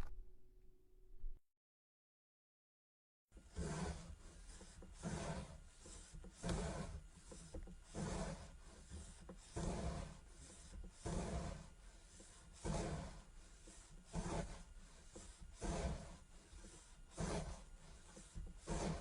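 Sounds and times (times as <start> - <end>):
soft sand scraping: 3.4 - 19.0.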